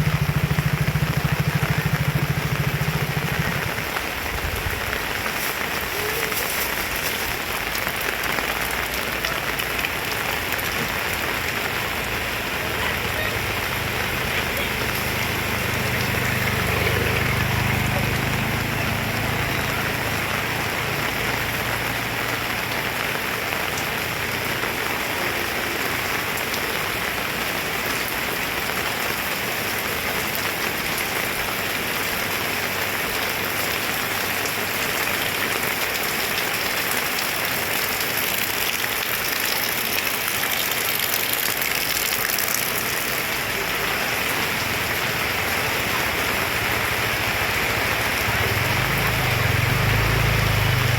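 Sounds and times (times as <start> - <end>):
low rumble: 0.0 - 4.8
heavy rain pouring: 0.0 - 50.9.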